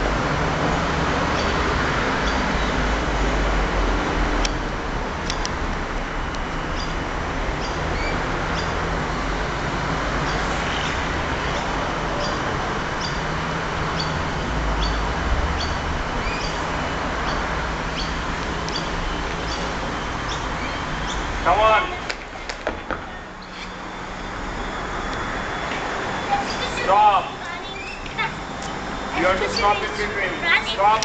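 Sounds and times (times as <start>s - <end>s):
bird chirping: 6.8s - 7.0s, 7.6s - 8.8s, 13.0s - 13.2s, 14.0s - 14.2s, 14.8s - 15.0s, 15.6s - 21.3s, 26.2s - 26.9s, 27.6s - 30.0s.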